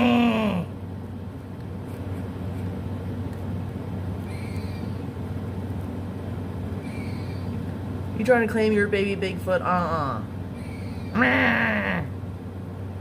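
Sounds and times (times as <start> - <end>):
outdoor background hum and hiss: 0.0 - 13.0
squirrel calling: 4.1 - 5.4, 6.6 - 8.0, 9.6 - 12.2.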